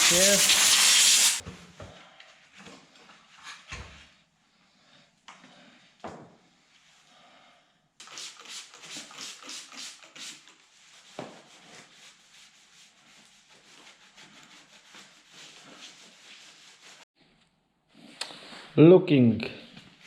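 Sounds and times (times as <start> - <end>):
scrubbing metal by hand: 8.2 - 17.0.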